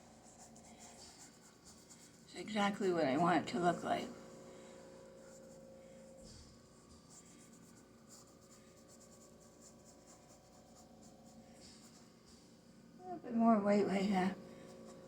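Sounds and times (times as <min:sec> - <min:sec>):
paintbrush strokes on canvas: 0:00.0 - 0:02.9, 0:05.2 - 0:12.6
low room hum: 0:00.0 - 0:15.0.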